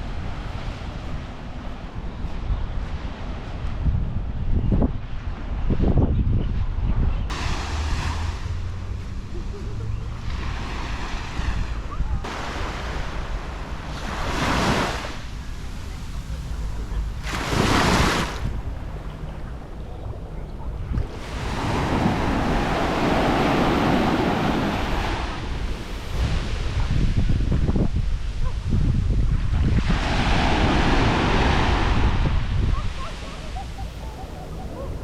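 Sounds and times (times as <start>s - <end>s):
wind buffeting microphone: 0.0s - 35.0s
sea surf breaking on beach: 7.3s - 35.0s.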